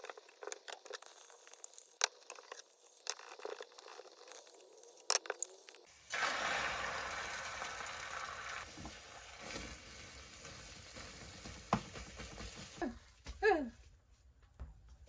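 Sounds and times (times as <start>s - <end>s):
food sizzling in a frying pan: 5.9s - 13.0s.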